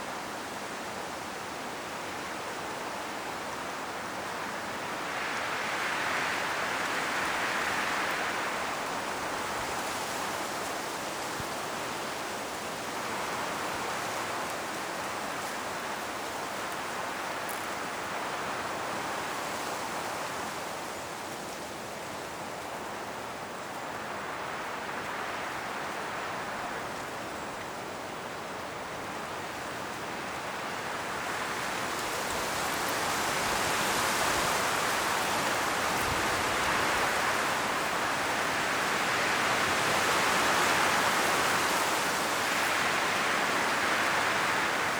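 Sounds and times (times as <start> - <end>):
wind rustling tree leaves: 0.0 - 44.9.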